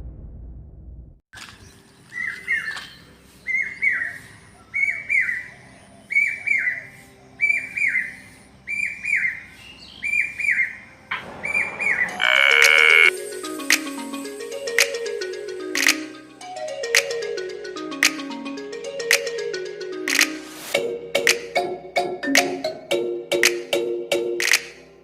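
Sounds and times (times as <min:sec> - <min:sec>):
bird two-part call: 0:11.1 - 0:13.1
loud harsh buzz: 0:11.2 - 0:13.1.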